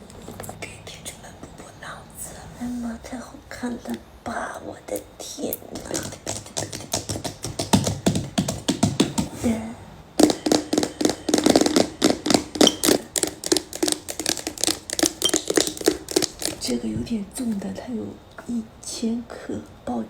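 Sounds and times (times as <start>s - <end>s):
fingernails tapping on container: 5.7s - 9.4s, 10.2s - 16.7s.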